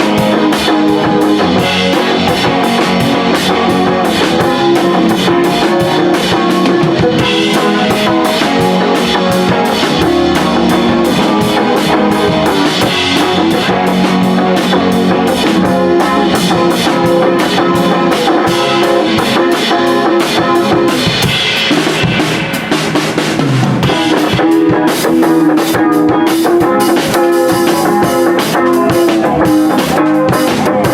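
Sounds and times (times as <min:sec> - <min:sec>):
electric guitar: 0:00.0 - 0:30.9
rapid drum hits: 0:00.0 - 0:30.9.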